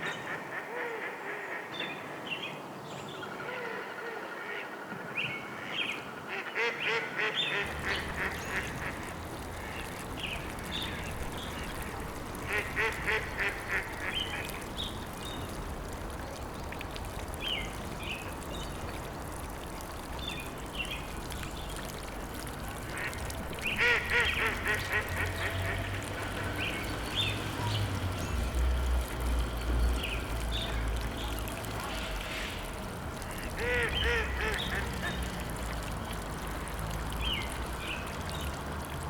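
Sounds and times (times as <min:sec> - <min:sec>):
ducks quacking: 0:06.3 - 0:10.0, 0:11.4 - 0:14.6, 0:22.9 - 0:26.6, 0:33.2 - 0:35.4.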